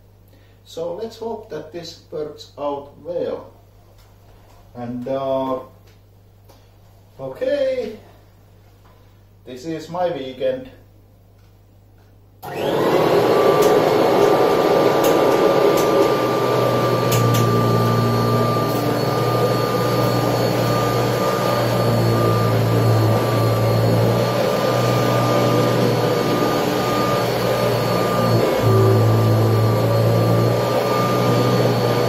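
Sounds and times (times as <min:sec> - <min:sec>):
vacuum cleaner running: 0:12.4 - 0:32.0.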